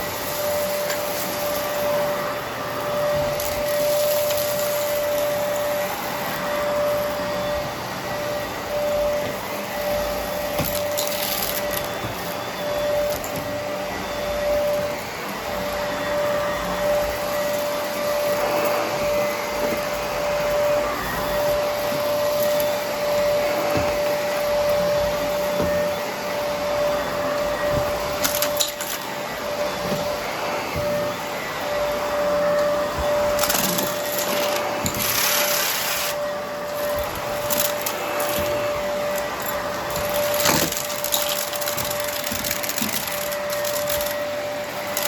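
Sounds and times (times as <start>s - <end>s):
vacuum cleaner running: 0.0s - 45.0s
debris crackling in vacuum: 33.3s - 45.0s.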